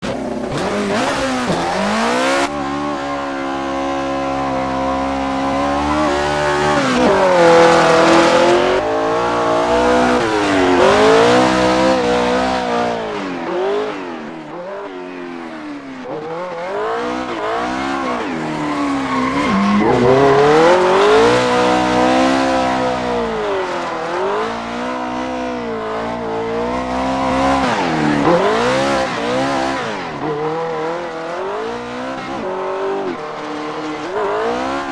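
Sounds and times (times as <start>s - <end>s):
car engine revving: 0.0s - 34.9s
tyres squealing: 16.0s - 34.8s.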